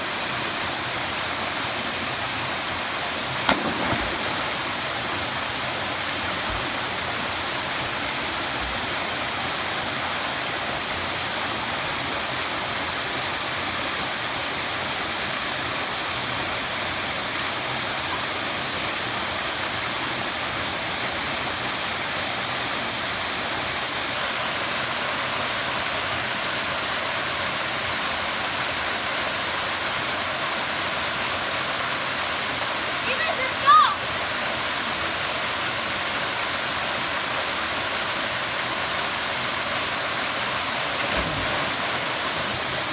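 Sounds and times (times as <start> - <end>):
waterfall rushing: 3.4 - 10.2, 33.0 - 34.2, 37.8 - 42.9
sharp knock: 3.5 - 4.7.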